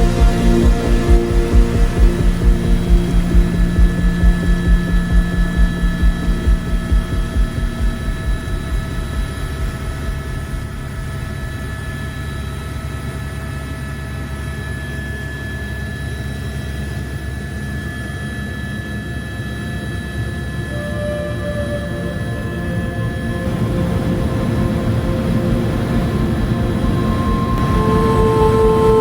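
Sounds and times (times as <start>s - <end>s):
rhythmic rotor beat: 0.0s - 11.7s
turbine whine: 0.0s - 29.0s
helicopter engine and rotor: 0.2s - 20.6s.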